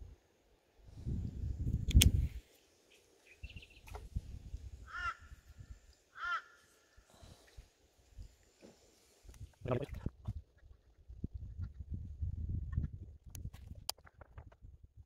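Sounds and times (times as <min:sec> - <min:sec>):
bird calling: 0:04.9 - 0:05.4, 0:06.1 - 0:07.5.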